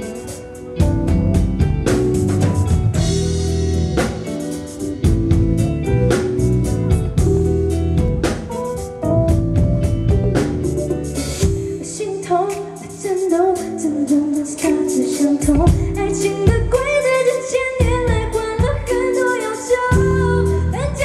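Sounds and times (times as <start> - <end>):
live pop band music: 0.0 - 21.0
woman singing: 11.6 - 21.0.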